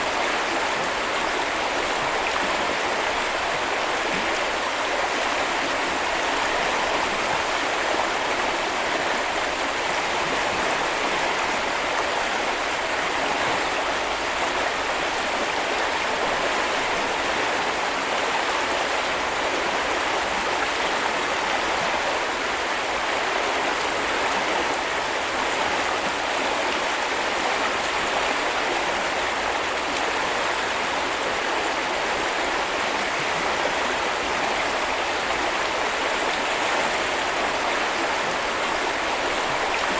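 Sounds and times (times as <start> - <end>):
brook flowing over stones: 0.0 - 39.9.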